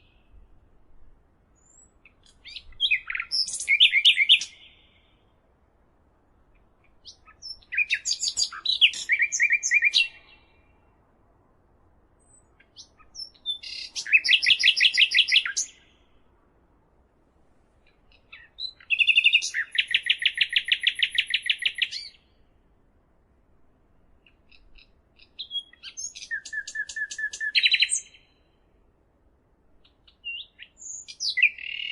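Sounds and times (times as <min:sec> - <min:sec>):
songbird chirping and trilling: 0:01.6 - 0:05.4, 0:06.4 - 0:11.1, 0:12.2 - 0:16.3, 0:17.8 - 0:22.5, 0:24.2 - 0:28.7, 0:29.8 - 0:31.9.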